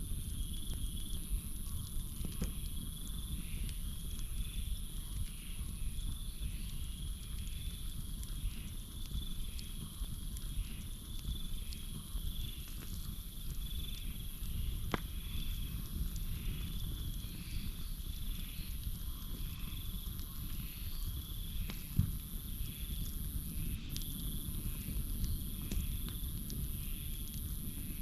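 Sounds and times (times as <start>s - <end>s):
campfire crackling: 0.0s - 28.0s
high-pitched insect chorus: 0.0s - 28.0s
repeating cricket or frog call: 13.7s - 22.0s.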